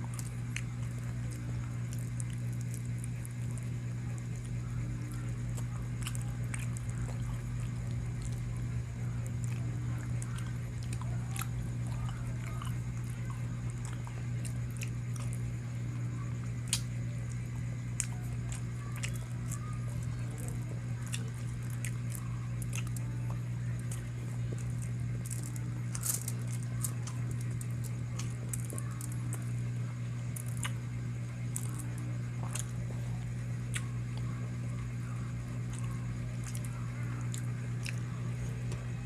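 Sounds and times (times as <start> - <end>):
steady low hum: 0.0 - 39.0
person chewing and biting chicken: 17.9 - 19.7, 20.7 - 29.5, 30.3 - 30.9, 31.5 - 32.9, 33.6 - 34.3, 35.6 - 38.1.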